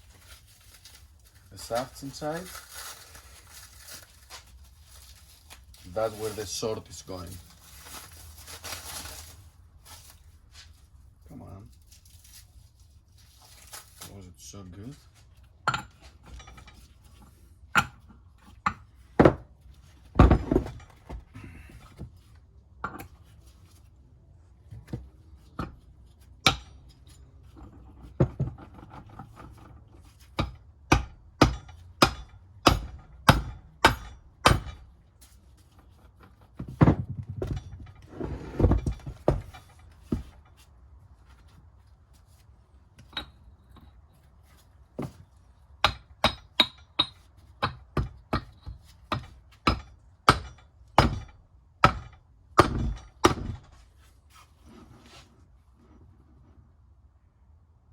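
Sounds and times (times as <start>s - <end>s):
scraping and handling noise: 0.0s - 30.4s, 35.0s - 45.8s, 53.5s - 56.8s.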